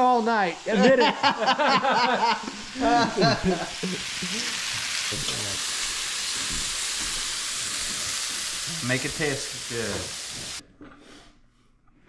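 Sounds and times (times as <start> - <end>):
mushrooms sizzling in a pan: 0.0 - 10.6
man laughing: 0.7 - 4.6.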